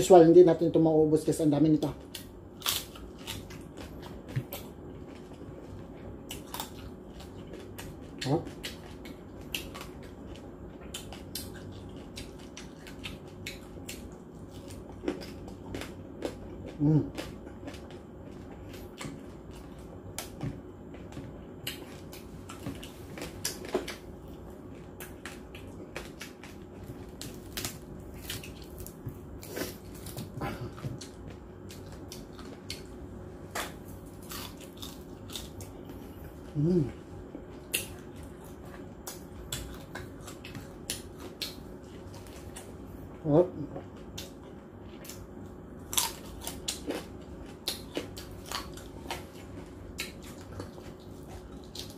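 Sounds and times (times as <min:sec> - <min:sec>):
chewing crispy pork skin: 0:00.8 - 0:51.9
person humming: 0:36.5 - 0:37.0.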